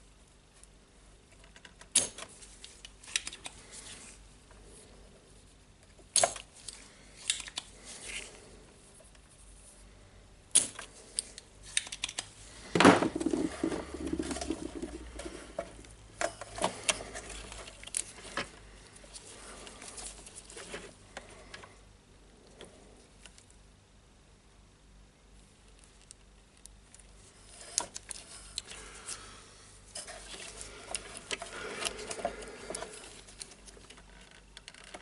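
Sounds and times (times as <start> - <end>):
rattling and scraping: 12.6 - 18.6.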